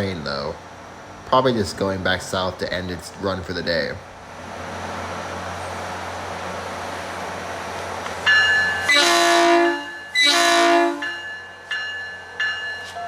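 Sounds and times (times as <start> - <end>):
train bell ringing: 8.2 - 13.0
train horn blasts: 8.8 - 11.2.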